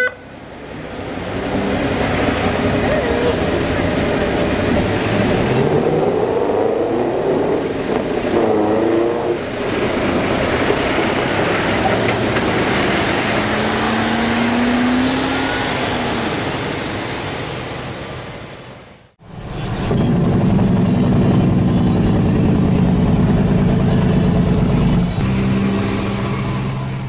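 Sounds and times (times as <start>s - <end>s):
heavy trucks driving past: 0.2s - 27.0s
long held tone: 19.3s - 27.0s.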